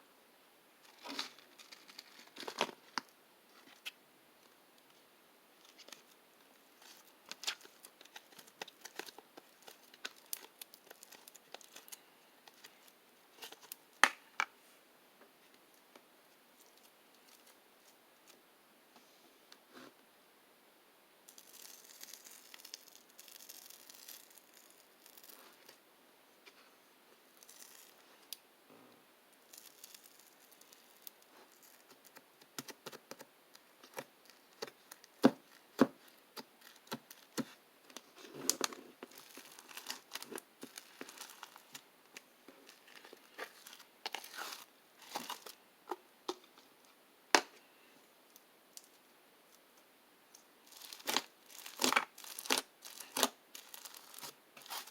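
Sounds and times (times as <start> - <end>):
paper tearing and crinkling: 50.7 - 54.9.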